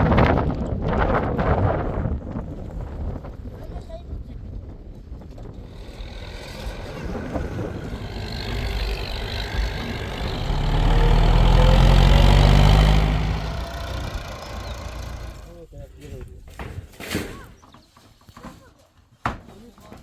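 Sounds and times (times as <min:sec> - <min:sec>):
vehicle engine passing by: 0:05.6 - 0:15.5.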